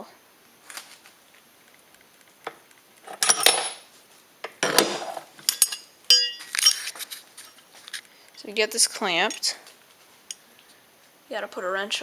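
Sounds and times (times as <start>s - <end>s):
metal clinks: 3.1s - 3.9s, 5.4s - 7.6s
metallic clattering and scraping: 4.6s - 8.0s
metal tool click: 5.5s - 7.0s.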